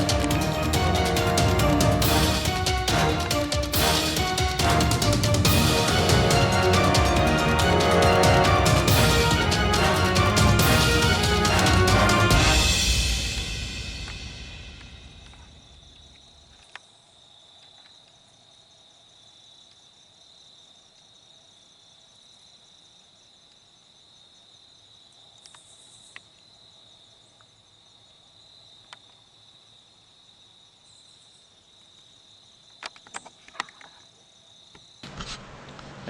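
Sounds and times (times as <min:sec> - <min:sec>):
crickets chirping: 0:12.5 - 0:35.1.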